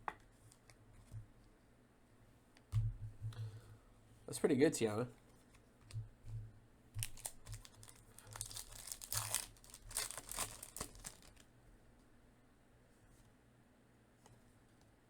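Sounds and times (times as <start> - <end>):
wrapper tearing and crumpling: 7.0 - 11.4.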